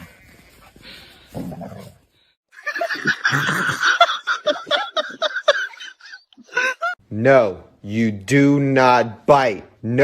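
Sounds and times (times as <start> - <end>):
person laughing hard: 2.6 - 7.0.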